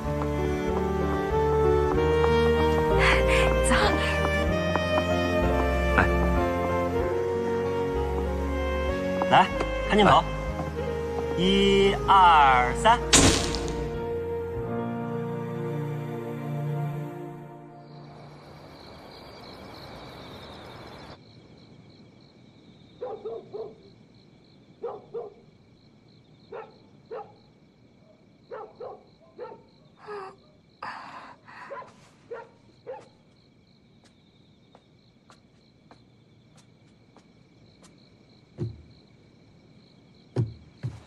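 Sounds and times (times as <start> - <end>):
insects trilling: 0.0 - 41.0
dog barking: 23.0 - 23.9, 24.8 - 25.5, 26.5 - 29.8, 31.6 - 33.2.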